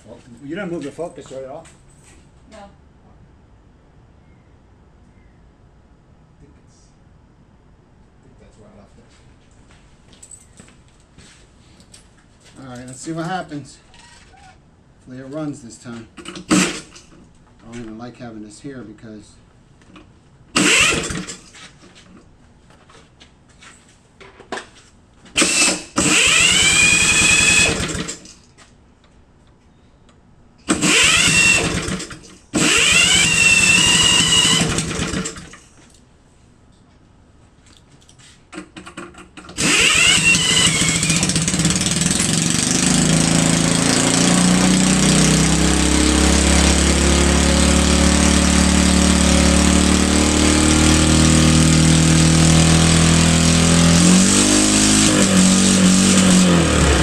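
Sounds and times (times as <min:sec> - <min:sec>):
engine cranking and droning: 0:16.2 - 0:17.2, 0:20.6 - 0:21.6, 0:25.4 - 0:28.4, 0:30.6 - 0:35.7, 0:38.7 - 0:57.0.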